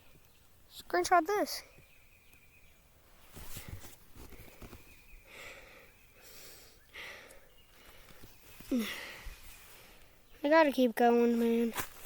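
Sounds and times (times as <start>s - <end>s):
person breathing hard: 5.2s - 10.2s.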